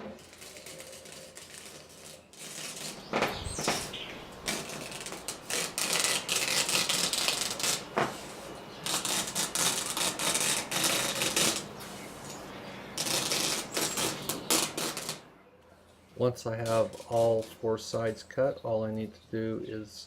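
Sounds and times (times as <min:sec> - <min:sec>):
knife slicing screen mesh: 0:00.2 - 0:11.7.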